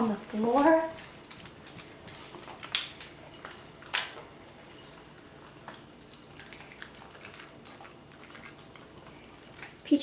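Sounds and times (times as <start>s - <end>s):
dogs chewing and licking food: 0.0s - 10.0s.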